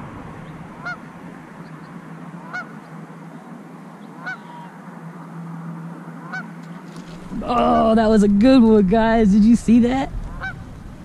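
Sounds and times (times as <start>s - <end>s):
bird calling: 0.0s - 5.3s, 6.2s - 8.2s, 10.1s - 11.0s
steady low hum: 0.0s - 11.0s.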